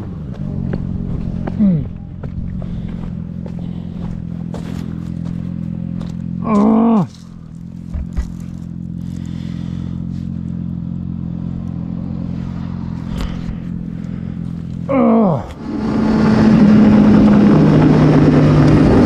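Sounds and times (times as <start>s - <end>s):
motorcycle engine running: 0.0s - 19.0s
loud sound with falling pitch: 15.6s - 19.0s.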